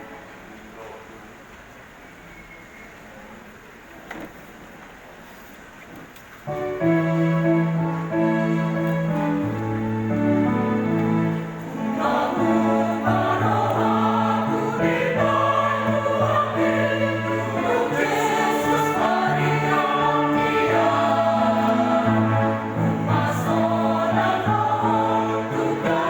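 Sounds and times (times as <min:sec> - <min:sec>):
church choir singing: 0:06.9 - 0:26.0.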